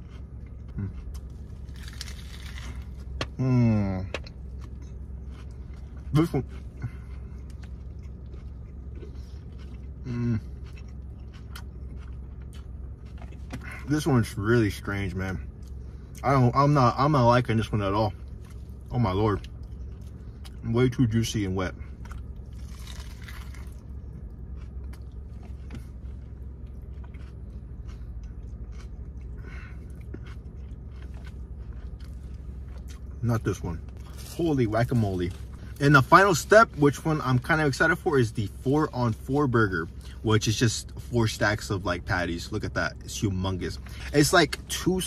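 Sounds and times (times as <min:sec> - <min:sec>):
person chewing food: 0:00.0 - 0:13.9, 0:18.2 - 0:20.6, 0:21.9 - 0:35.8
closed-mouth mm hum: 0:00.0 - 0:45.0
steady low hum: 0:00.0 - 0:45.0.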